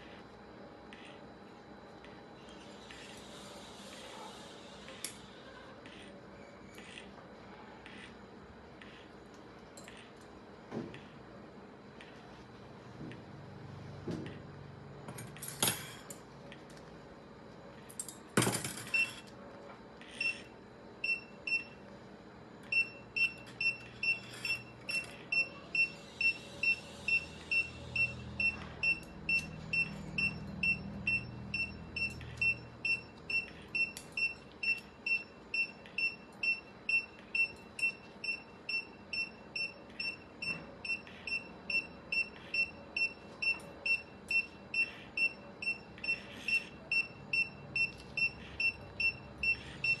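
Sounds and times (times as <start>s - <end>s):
patient monitor beeps: 20.0s - 21.9s, 22.6s - 50.0s.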